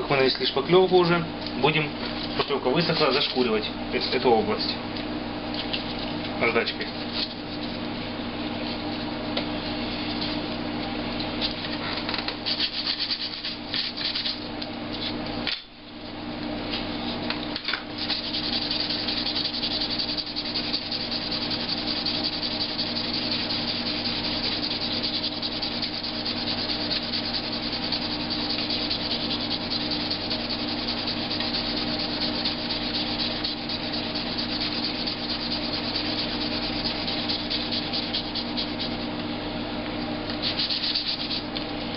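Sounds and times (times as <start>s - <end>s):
sandpaper sanding plastic: 12.4s - 14.4s, 18.0s - 39.1s, 40.4s - 41.5s.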